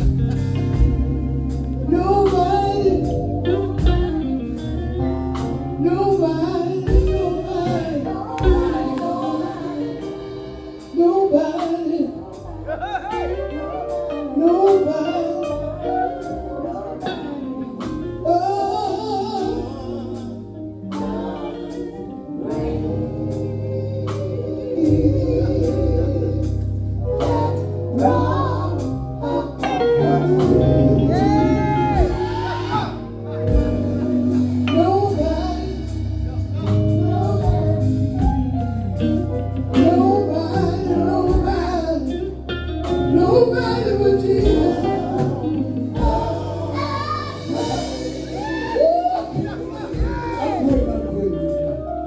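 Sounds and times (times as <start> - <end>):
band with bass and drums: 0.0 - 52.0
gospel group singing in harmony: 0.0 - 52.0.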